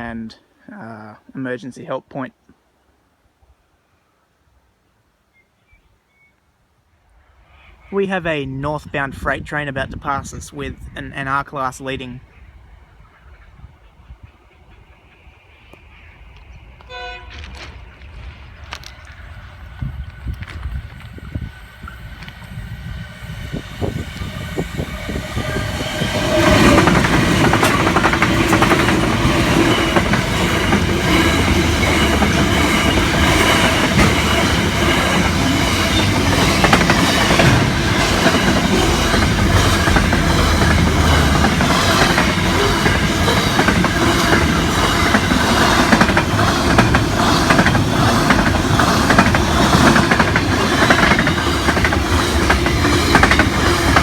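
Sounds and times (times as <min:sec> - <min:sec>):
diesel locomotive passing: 0:16.0 - 0:54.0
freight wagons rolling: 0:25.4 - 0:54.0
wheels clicking over rail joints: 0:26.1 - 0:54.0.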